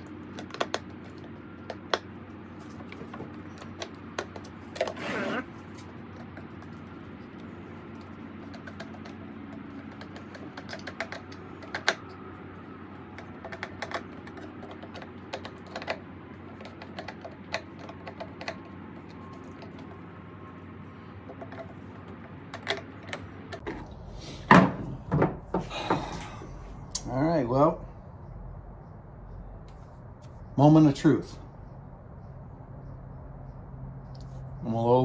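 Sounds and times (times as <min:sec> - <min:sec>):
small parts clicking and tapping: 0:00.0 - 0:04.9, 0:05.8 - 0:12.3, 0:13.1 - 0:20.1, 0:21.2 - 0:23.7
steady low hum: 0:00.0 - 0:35.0.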